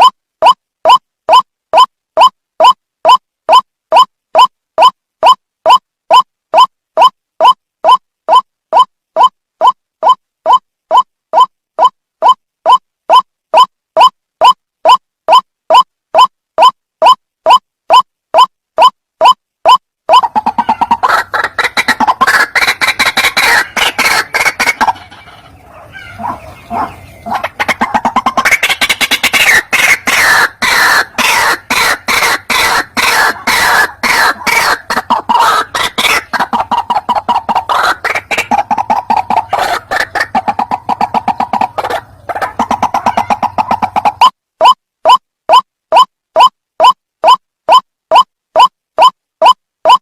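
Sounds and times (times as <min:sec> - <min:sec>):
waterhen harsh repeated calls: 0:00.0 - 0:50.0.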